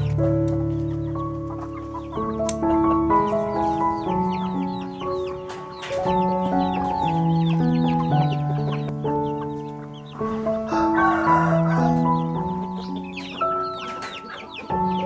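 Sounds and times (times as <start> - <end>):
background music of held notes: 0.0 - 15.0
chickens peeping: 0.0 - 15.0
chicken squawk: 6.2 - 15.0.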